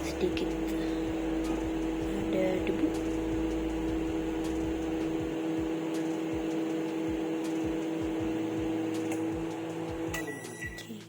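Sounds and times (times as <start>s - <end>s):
soft low pulse: 0.0s - 6.6s
microwave oven humming: 0.0s - 11.0s.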